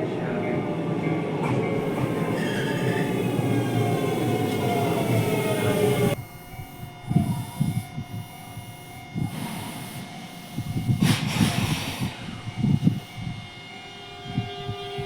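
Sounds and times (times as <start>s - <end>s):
electric train running: 0.0s - 15.0s
hiss: 9.2s - 13.2s.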